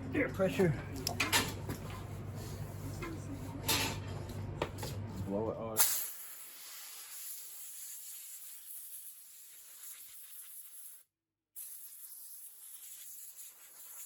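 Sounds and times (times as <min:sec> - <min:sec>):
air blow gun hissing: 0:05.8 - 0:11.0.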